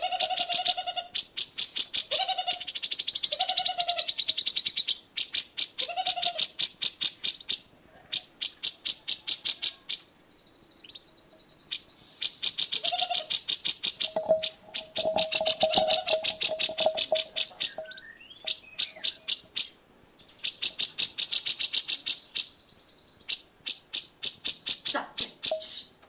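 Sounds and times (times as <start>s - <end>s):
bird chattering trills: 12.2s - 19.4s, 23.7s - 25.9s.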